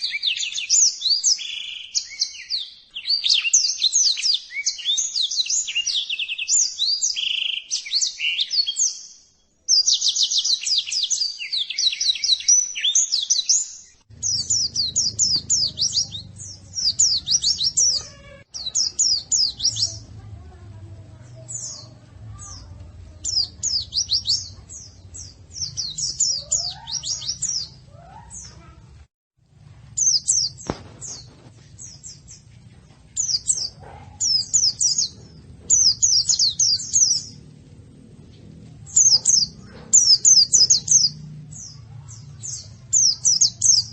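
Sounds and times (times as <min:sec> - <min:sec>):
high-pitched bird twittering: 0:09.7 - 0:20.1, 0:21.4 - 0:28.8, 0:33.2 - 0:37.4, 0:38.8 - 0:43.9
low hum: 0:35.0 - 0:39.8.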